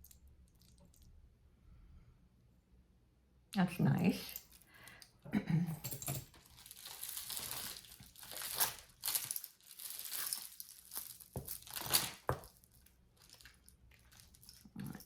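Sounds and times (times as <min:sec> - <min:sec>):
plastic packaging crinkling: 0:06.3 - 0:15.0.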